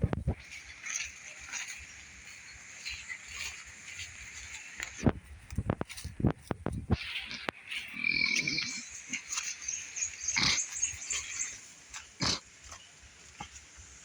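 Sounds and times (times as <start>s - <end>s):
animal calling: 7.0s - 12.8s.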